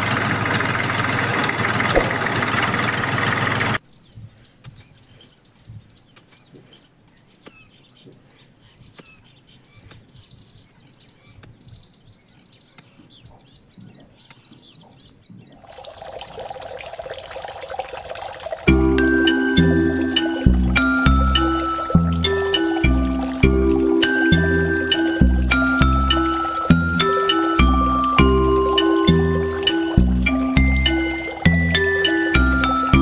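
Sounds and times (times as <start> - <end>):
running water rushing: 0.0 - 3.8, 15.6 - 33.0
birds chirping: 0.0 - 33.0.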